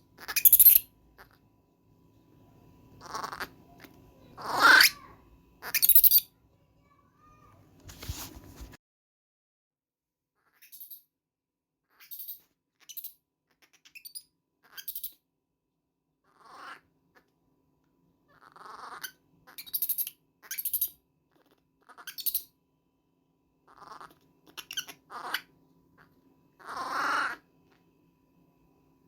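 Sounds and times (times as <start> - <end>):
baby monkey squealing: 0.2 - 1.4, 3.0 - 6.3, 11.9 - 15.2, 18.3 - 22.5, 23.7 - 25.5, 26.6 - 27.4.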